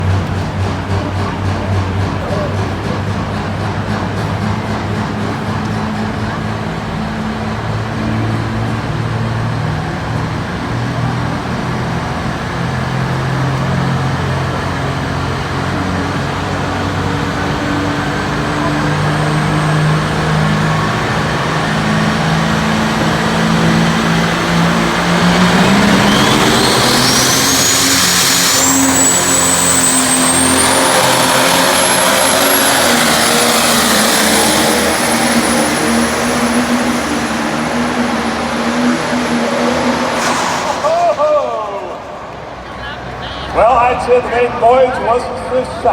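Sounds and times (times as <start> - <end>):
tractor engine under load: 0.0 - 45.9
high whine: 18.6 - 45.9.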